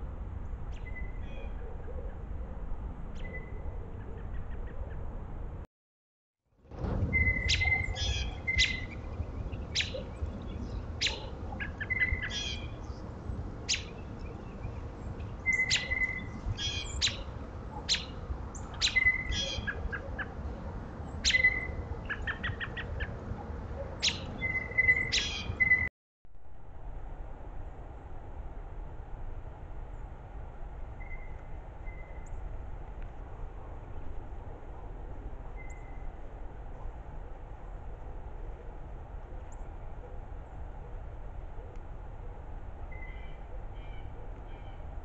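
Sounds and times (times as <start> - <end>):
steady low rumble: 6.6 - 24.5
small birds chirping: 7.2 - 17.3, 17.9 - 20.3, 21.1 - 23.2, 24.0 - 25.9.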